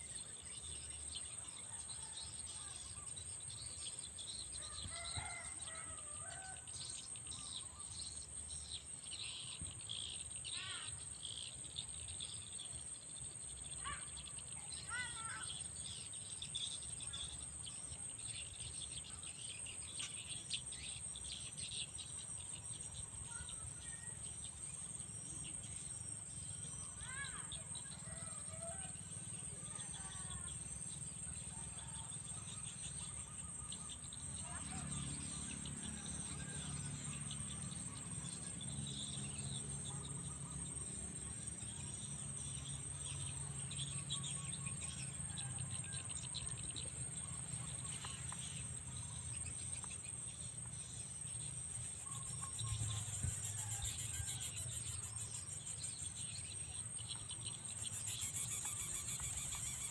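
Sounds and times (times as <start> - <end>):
insects droning: 0.0 - 59.9
bird chirps: 51.5 - 59.9.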